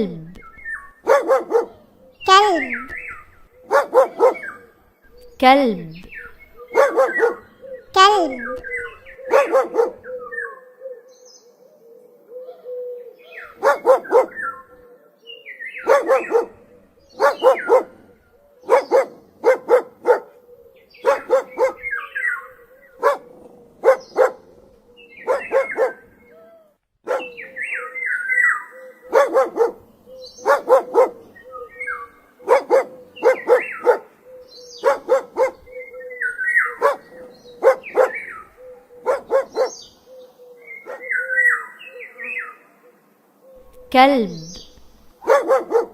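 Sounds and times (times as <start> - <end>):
dog barking: 1.0 - 3.0, 3.6 - 4.7, 6.7 - 7.5, 8.2 - 10.1, 13.5 - 14.6, 15.8 - 22.3, 22.9 - 26.3, 27.1 - 27.7, 29.1 - 34.2, 34.8 - 35.8, 36.6 - 39.8, 40.8 - 41.2, 45.1 - 45.9.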